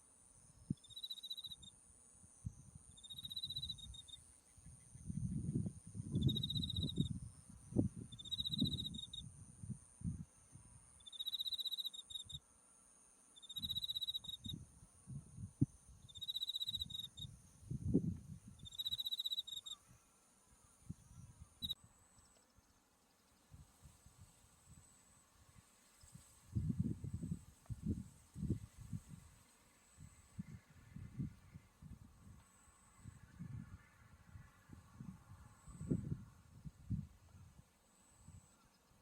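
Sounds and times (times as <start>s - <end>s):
cricket chirping: 0.1s - 37.1s, 37.9s - 39.0s
high-pitched insect trill: 0.4s - 10.2s, 10.8s - 12.4s, 13.4s - 19.9s, 20.8s - 23.3s
wind rumbling on microphone: 4.7s - 10.3s, 14.4s - 16.1s, 16.7s - 18.7s, 25.5s - 32.4s, 33.0s - 37.6s.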